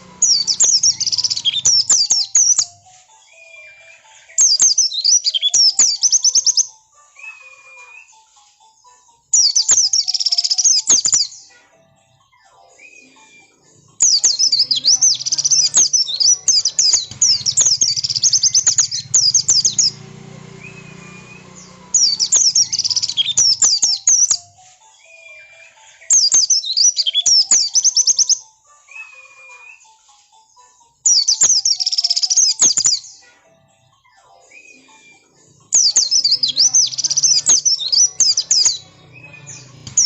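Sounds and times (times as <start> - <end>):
bird twittering: 0.0 - 8.1, 9.4 - 11.5, 13.9 - 28.4, 31.1 - 33.2, 35.6 - 40.0.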